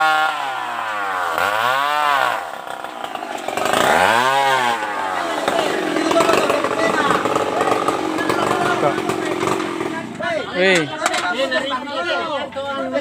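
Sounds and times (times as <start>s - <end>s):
small engine revving: 0.0s - 10.3s.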